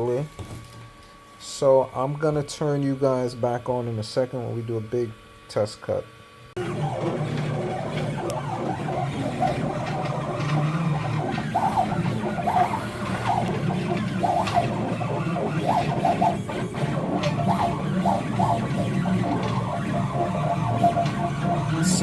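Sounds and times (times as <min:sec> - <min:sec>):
machine motors humming: 0:06.1 - 0:22.0
short motor whines: 0:06.6 - 0:22.0.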